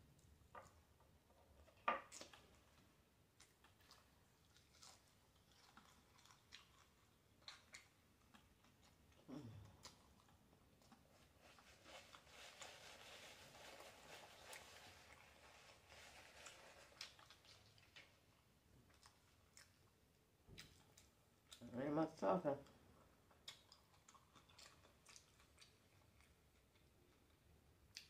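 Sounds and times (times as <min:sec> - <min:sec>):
crunchy chewing: 0:03.4 - 0:18.1, 0:23.2 - 0:28.0.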